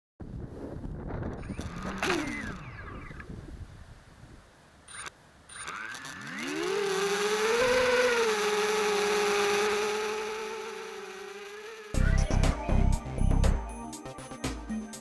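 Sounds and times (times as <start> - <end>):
drone motors whining: 1.4 - 3.3, 4.9 - 13.7.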